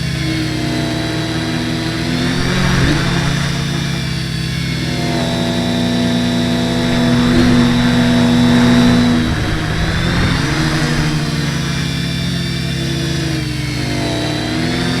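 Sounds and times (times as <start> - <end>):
quadcopter propellers buzzing: 0.0 - 15.0.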